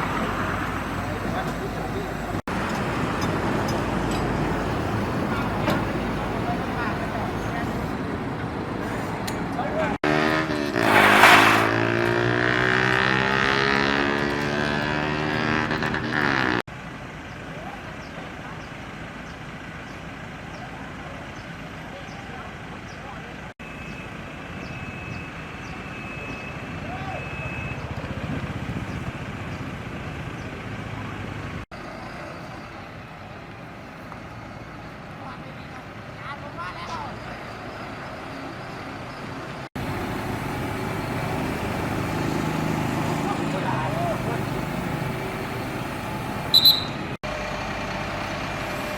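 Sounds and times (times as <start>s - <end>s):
engine running steadily: 0.0s - 10.0s, 27.8s - 36.1s, 37.5s - 48.9s
highway traffic rumble: 0.0s - 48.9s.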